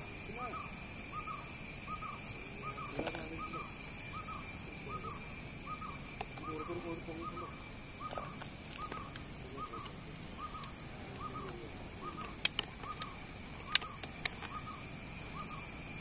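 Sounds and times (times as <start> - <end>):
steady high-pitched whine: 0.0 - 16.0
bird repeating short call: 0.4 - 14.8
sharp clicks: 12.2 - 14.6.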